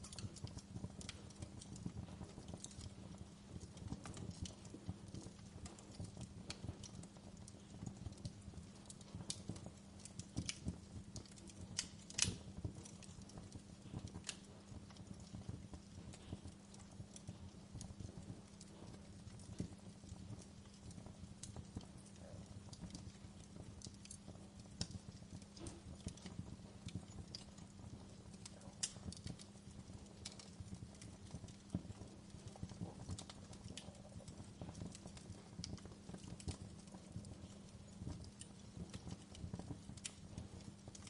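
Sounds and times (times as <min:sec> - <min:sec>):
low steady hum: 0:00.0 - 0:41.0
wood fire crackling and popping: 0:00.0 - 0:41.0.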